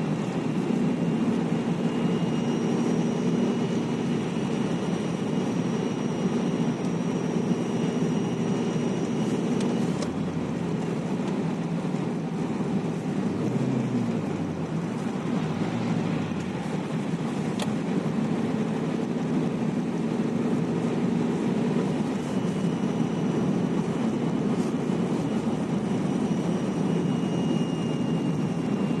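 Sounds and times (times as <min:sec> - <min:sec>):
petrol engine running: 0:00.0 - 0:29.0
thin high whistle: 0:24.6 - 0:29.0.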